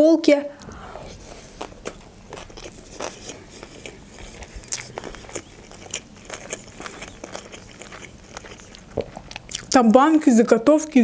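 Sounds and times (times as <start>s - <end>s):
person chewing: 0.6s - 9.8s.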